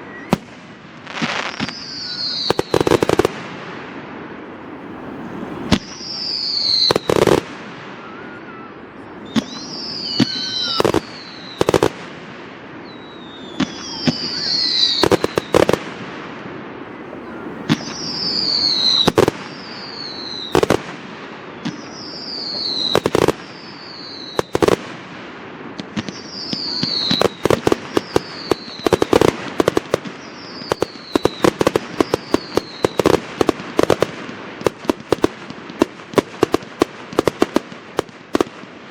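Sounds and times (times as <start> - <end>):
firework bangs: 0.0 - 38.9
high falling whistle: 1.4 - 3.0, 4.8 - 11.7, 12.8 - 15.7, 17.2 - 20.6, 21.6 - 24.5, 26.1 - 33.2
rapid crackling pops: 15.0 - 16.0, 25.8 - 38.7.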